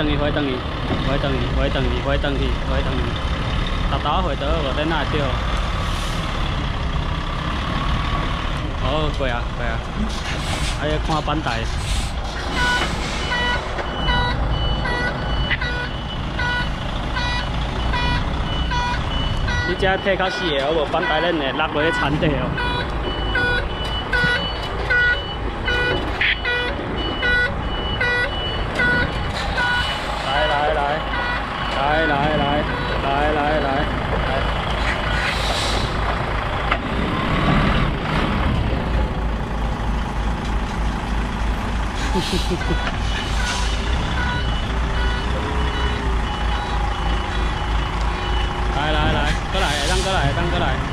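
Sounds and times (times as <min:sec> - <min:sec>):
diesel engine running: 0:00.0 - 0:50.9
truck reversing alarm beeping: 0:12.4 - 0:36.0, 0:42.2 - 0:50.9.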